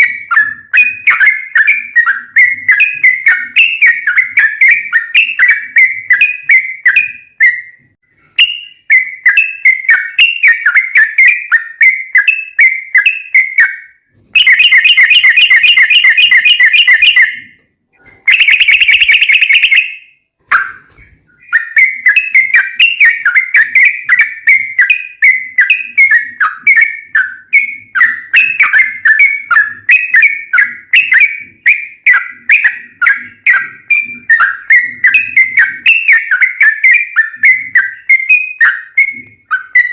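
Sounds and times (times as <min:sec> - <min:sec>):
bird rolling trills: 0:20.5 - 0:39.9
bird singing bubbling notes: 0:20.6 - 0:39.9.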